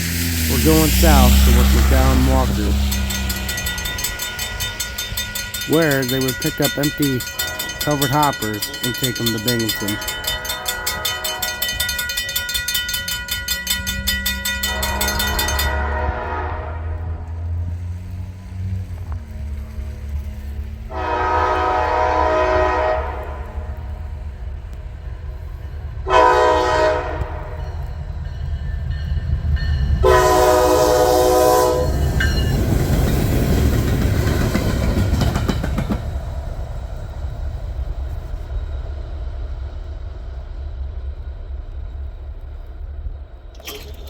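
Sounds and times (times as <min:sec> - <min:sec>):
diesel locomotive engine rumble: 0:00.0 - 0:44.0
rail noise: 0:00.0 - 0:44.0
locomotive horn blasts: 0:00.5 - 0:12.2, 0:14.4 - 0:17.3, 0:20.9 - 0:23.9, 0:26.1 - 0:27.6, 0:30.0 - 0:32.1.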